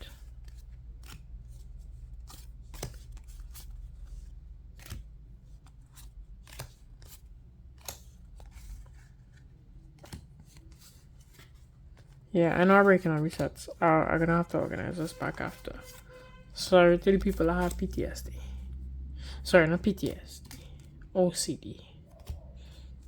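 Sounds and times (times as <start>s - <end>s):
cards clicking and snapping: 0.1s - 12.2s, 17.2s - 18.0s, 19.8s - 21.1s, 22.0s - 23.0s.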